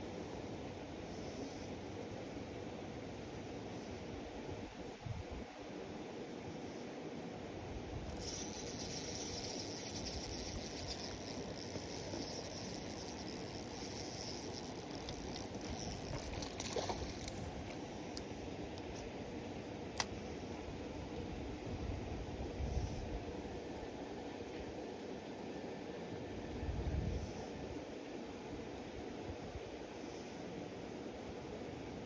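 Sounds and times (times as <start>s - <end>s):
outdoor background noise: 0.0s - 32.0s
high finely textured hiss: 8.1s - 16.5s.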